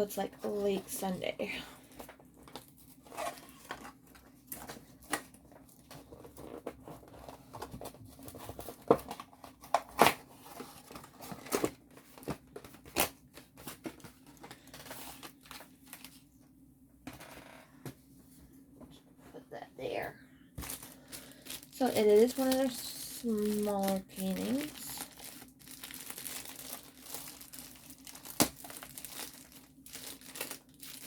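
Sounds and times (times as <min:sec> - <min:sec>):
packaging crinkling: 0:20.6 - 0:31.0
sharp packaging snaps: 0:25.7 - 0:31.0.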